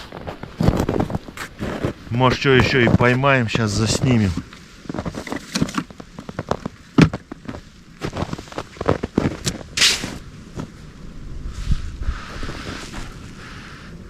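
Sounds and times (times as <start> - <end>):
short rustling hiss: 9.7 - 10.2.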